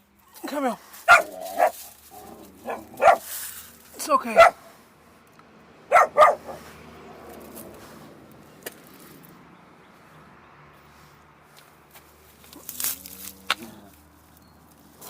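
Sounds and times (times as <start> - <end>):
dog barking: 1.1 - 1.8, 2.6 - 3.3, 4.3 - 4.7, 5.9 - 6.7.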